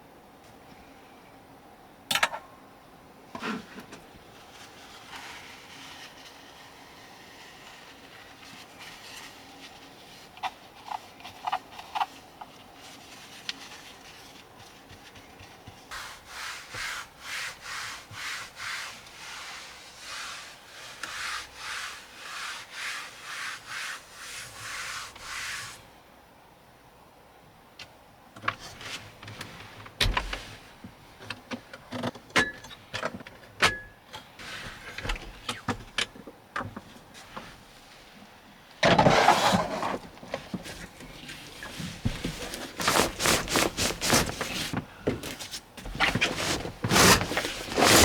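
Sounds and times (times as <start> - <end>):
loud rustling scrape: 12.8 - 25.8, 39.0 - 48.0.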